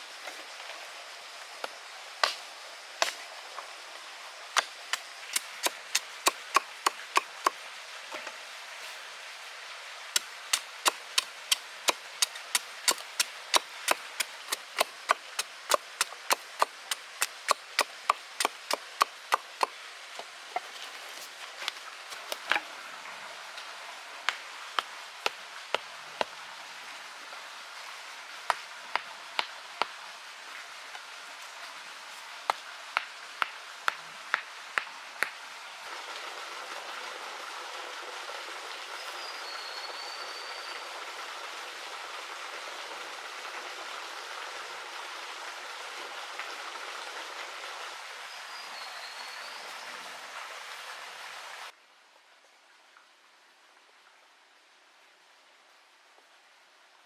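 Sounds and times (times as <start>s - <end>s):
sharp chopping strokes: 4.9s - 7.6s, 10.2s - 19.8s.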